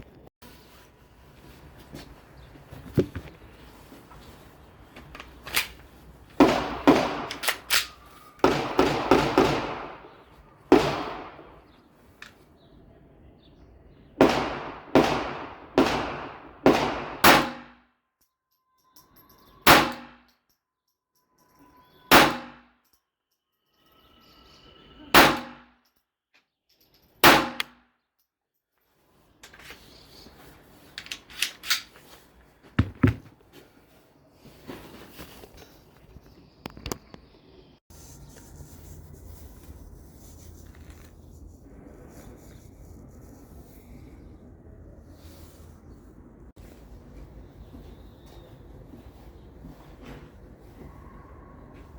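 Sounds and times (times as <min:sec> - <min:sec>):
pistol shots with ringing echo: 0:06.4 - 0:10.1, 0:10.7 - 0:11.6, 0:14.2 - 0:17.8, 0:19.7 - 0:20.2, 0:22.1 - 0:22.7, 0:25.1 - 0:25.7, 0:27.2 - 0:27.7.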